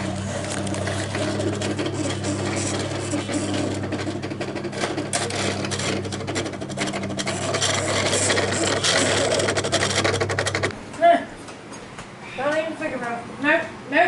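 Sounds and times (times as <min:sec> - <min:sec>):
belt grinder grinding steel: 0:00.0 - 0:10.8.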